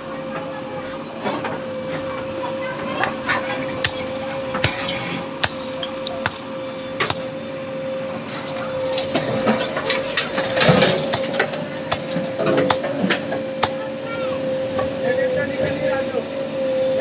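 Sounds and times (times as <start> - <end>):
backhoe loader humming: 1.6 - 13.8
metal knocking: 2.4 - 7.3, 8.4 - 13.0.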